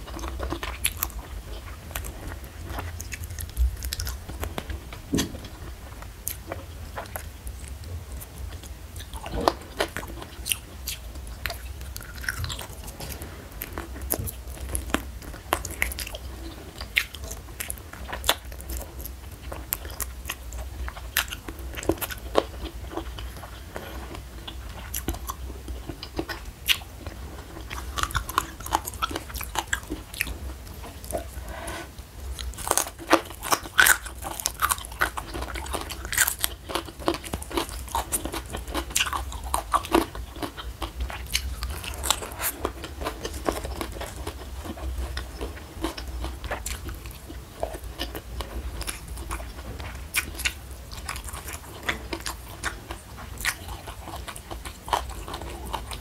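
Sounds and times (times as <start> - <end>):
person chewing crisp leafy greens: 0.0 - 56.0
steady low hum: 0.0 - 56.0.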